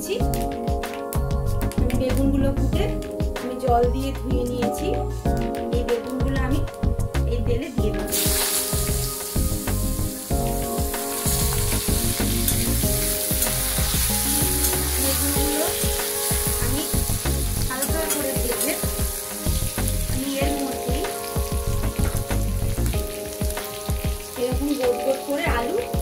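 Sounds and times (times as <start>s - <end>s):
eggplant sizzling in oil: 8.0s - 26.0s.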